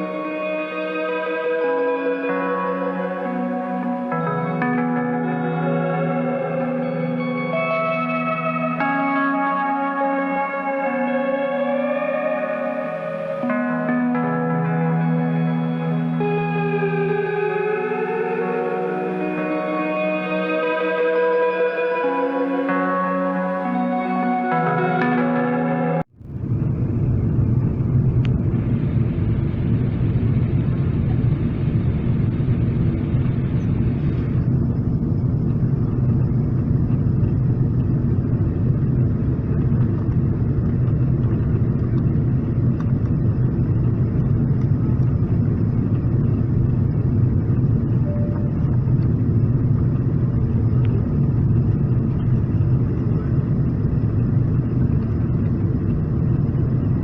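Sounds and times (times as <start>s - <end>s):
airplane cabin rumble in flight: 26.2s - 57.0s.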